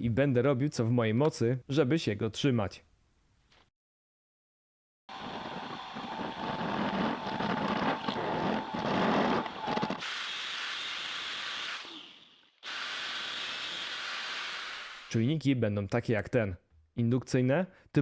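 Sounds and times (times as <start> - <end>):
power tool cutting: 5.1 - 15.1.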